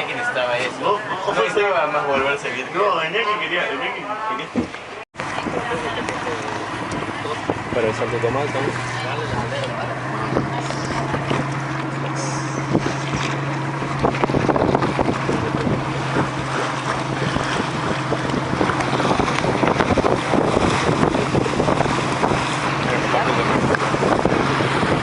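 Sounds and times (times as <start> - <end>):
vehicle drone: 4.6 - 25.0
wind buffeting microphone: 5.2 - 25.0.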